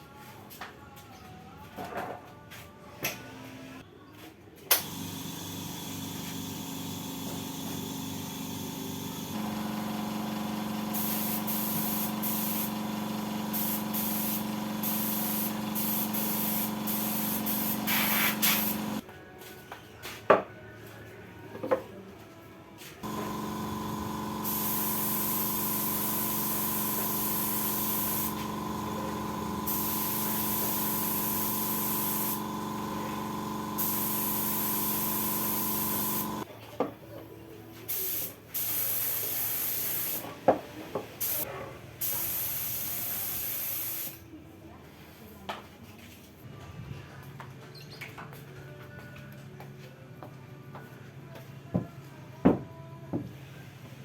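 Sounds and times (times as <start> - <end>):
small motor running with hiss: 4.8 - 19.0, 23.0 - 36.5.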